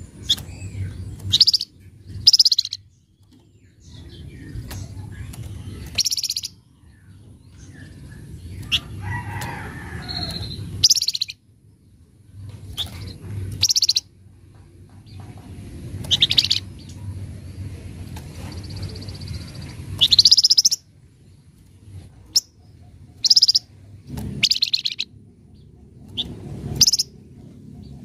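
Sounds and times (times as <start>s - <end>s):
steady low hum: 0.0s - 28.0s
bird chattering calls: 0.2s - 2.9s, 4.5s - 6.6s, 10.2s - 11.4s, 12.8s - 14.1s, 16.1s - 16.7s, 18.7s - 20.8s, 22.3s - 23.7s, 24.4s - 25.1s, 26.1s - 27.2s.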